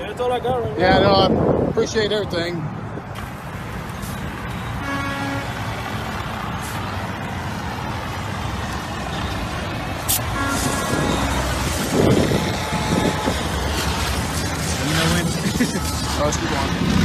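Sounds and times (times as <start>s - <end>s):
road traffic noise: 0.0s - 17.0s
short horn toot: 10.1s - 11.6s.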